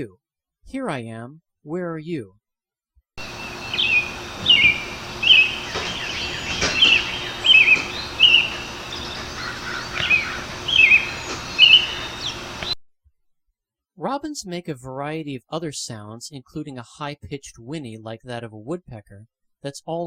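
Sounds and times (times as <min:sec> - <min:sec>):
faint background hum: 0:03.2 - 0:12.8
robin singing whistled phrases: 0:03.2 - 0:12.8.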